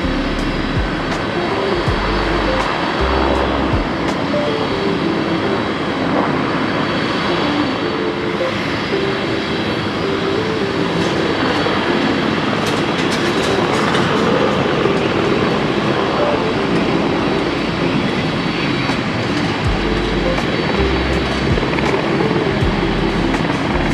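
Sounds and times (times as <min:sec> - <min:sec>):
jet airliner engines: 0:00.0 - 0:23.9.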